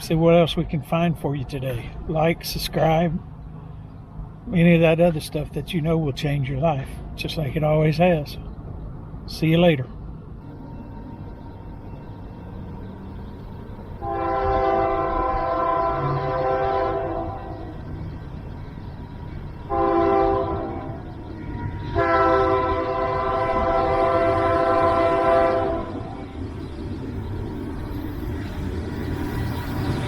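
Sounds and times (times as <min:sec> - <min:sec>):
low rumble of train: 0:00.0 - 0:30.0
locomotive air horn blasts: 0:14.0 - 0:17.6, 0:19.7 - 0:21.0, 0:21.9 - 0:26.1.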